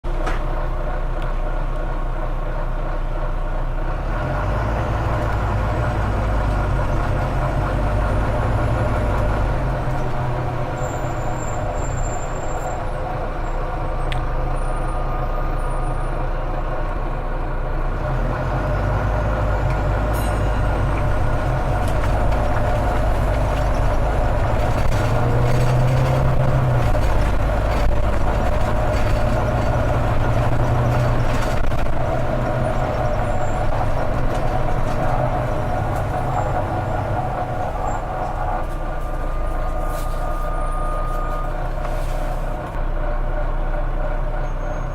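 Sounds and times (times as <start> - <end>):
bus diesel engine running: 0.0 - 44.9
turbocharger whistle: 39.3 - 41.6.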